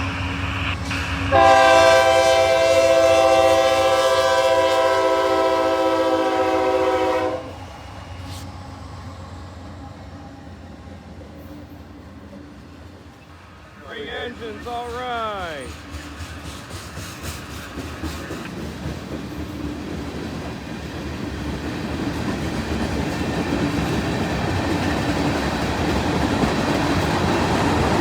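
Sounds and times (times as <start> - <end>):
diesel locomotives rumbling: 0.0 - 28.0
locomotive horn blast: 0.1 - 7.6.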